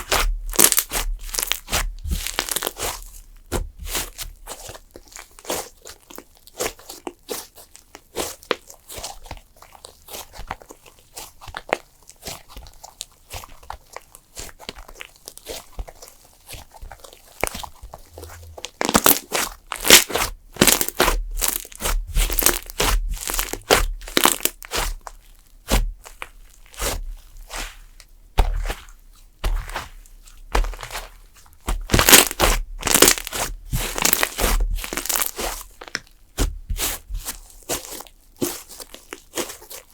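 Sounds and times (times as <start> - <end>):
slime squeezed by hand: 0.1 - 3.0, 17.4 - 27.8, 31.7 - 35.8.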